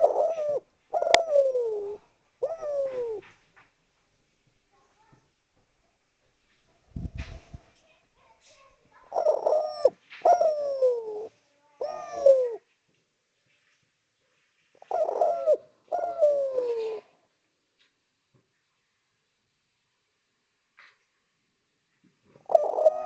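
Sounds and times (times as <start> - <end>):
dove cooing: 0.0 - 3.4, 9.0 - 12.7, 14.8 - 17.2, 22.4 - 23.0.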